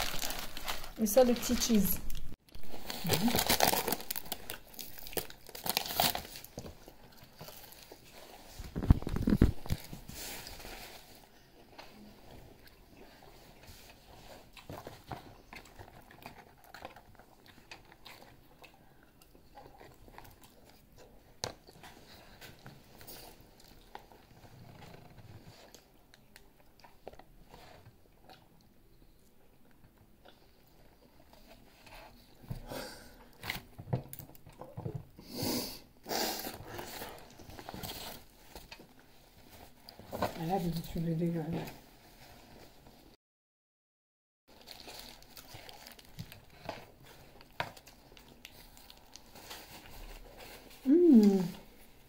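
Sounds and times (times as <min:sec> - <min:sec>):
paper and cardboard crinkling: 0:00.0 - 0:12.0, 0:36.6 - 0:43.0, 0:44.5 - 0:51.9
person chewing fried food: 0:12.5 - 0:27.3, 0:44.6 - 0:49.9.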